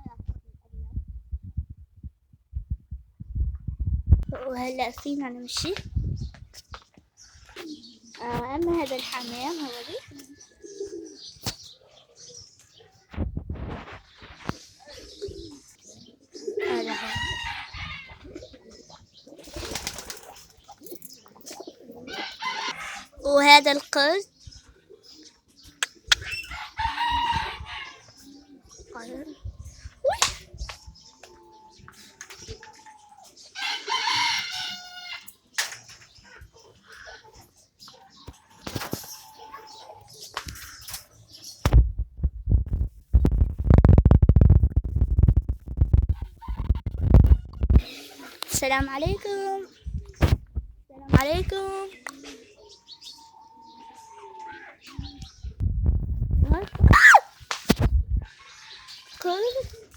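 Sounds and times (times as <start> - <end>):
wind buffeting microphone: 0.0 - 7.6, 13.1 - 15.7, 16.4 - 19.2, 26.1 - 32.6, 41.6 - 47.9, 48.5 - 51.6, 54.9 - 57.0, 57.7 - 58.4
pigeons cooing: 7.2 - 13.1, 13.9 - 41.6, 47.8 - 50.3, 51.3 - 55.6, 58.2 - 59.9.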